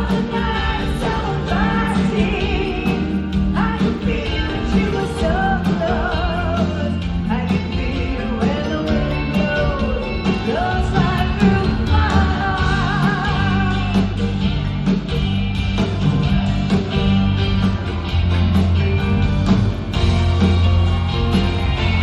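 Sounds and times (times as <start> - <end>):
woman singing lead: 0.0 - 14.6
live pop-rock band playing: 0.0 - 22.0.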